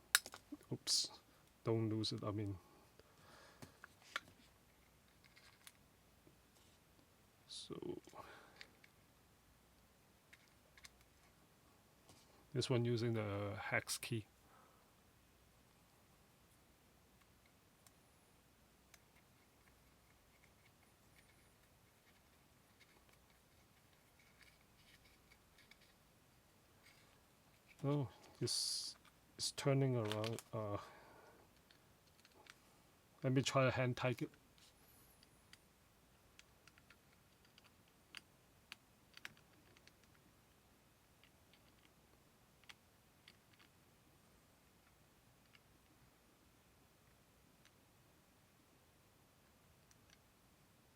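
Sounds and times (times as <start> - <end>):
hex key clicks and scrapes: 18.9 - 26.0.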